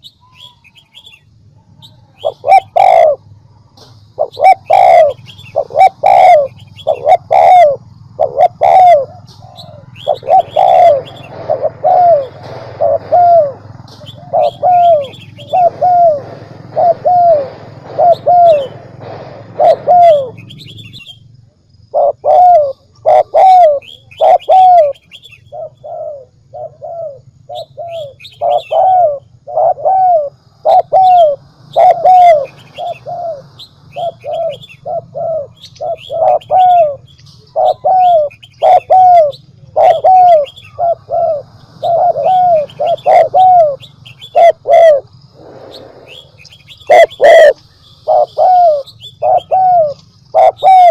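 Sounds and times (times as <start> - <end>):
small birds chirping: 0.0 - 50.9
low hum: 1.2 - 23.2, 39.3 - 50.9
dove cooing: 1.6 - 3.3, 4.2 - 21.2, 21.9 - 50.9.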